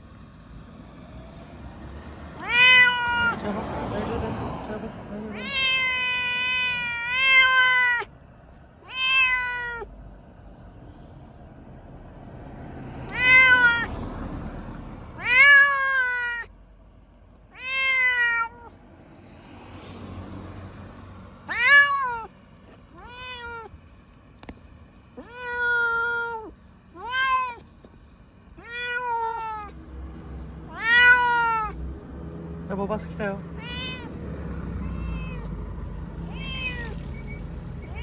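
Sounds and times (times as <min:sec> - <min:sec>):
cat meowing: 0:02.3 - 0:03.5, 0:05.3 - 0:08.1, 0:08.8 - 0:09.9, 0:13.1 - 0:14.0, 0:15.1 - 0:16.5, 0:17.5 - 0:18.8, 0:21.4 - 0:23.8, 0:25.2 - 0:27.8, 0:28.6 - 0:29.9, 0:30.7 - 0:31.8, 0:33.5 - 0:38.0.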